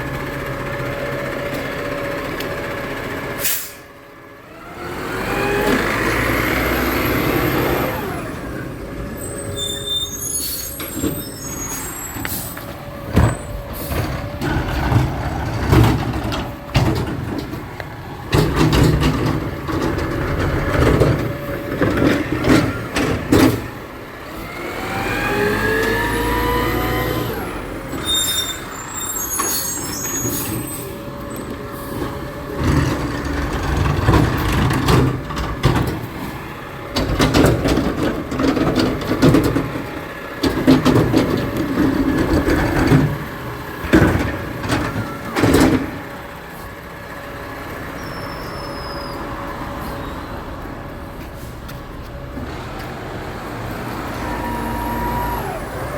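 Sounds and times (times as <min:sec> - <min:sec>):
garbage truck engine revving: 0:04.3 - 0:55.9
metallic clanks and knocks: 0:18.3 - 0:23.7.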